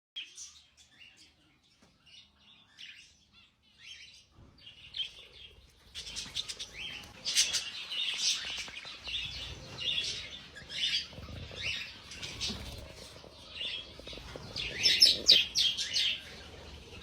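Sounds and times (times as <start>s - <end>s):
small birds chirping: 0.2s - 17.0s.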